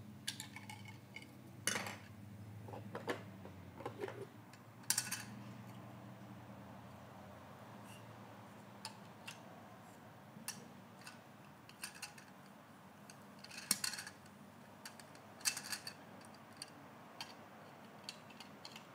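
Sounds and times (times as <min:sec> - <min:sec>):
light clicks and clatters: 0:10.4 - 0:18.9.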